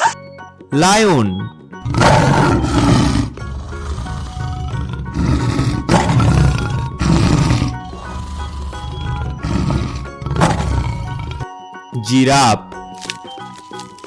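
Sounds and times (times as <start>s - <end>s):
background music: 0.0s - 14.0s
lion roaring: 1.8s - 11.5s.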